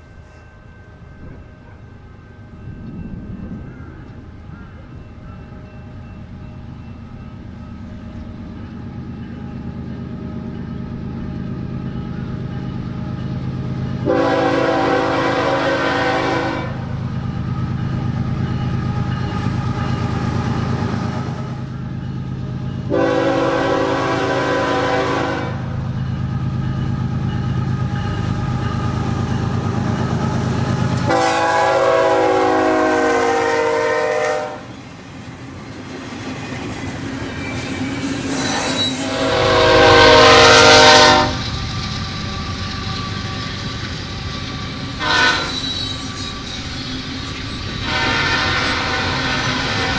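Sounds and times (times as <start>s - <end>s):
diesel locomotive engine rumble: 0.0s - 49.9s
locomotive air horn blasts: 14.0s - 16.9s, 22.9s - 25.7s, 31.0s - 34.7s, 39.0s - 41.5s, 45.0s - 45.8s, 47.8s - 49.9s.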